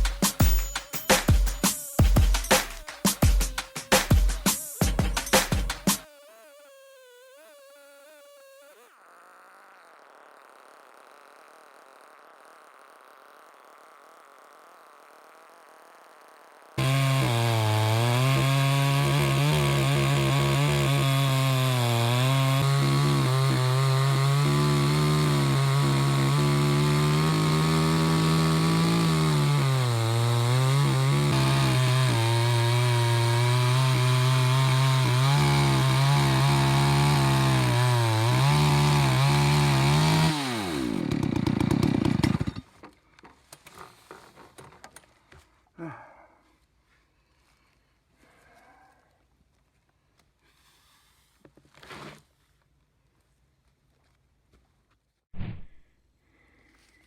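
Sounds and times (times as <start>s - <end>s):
chainsaw cutting a log: 0.0s - 43.0s.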